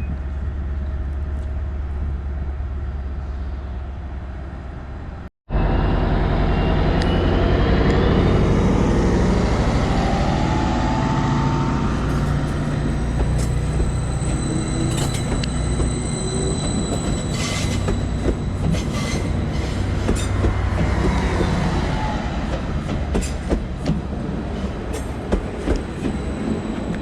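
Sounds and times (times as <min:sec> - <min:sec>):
train engine droning: 0:00.0 - 0:27.0
faint wheel squeal: 0:12.4 - 0:20.3.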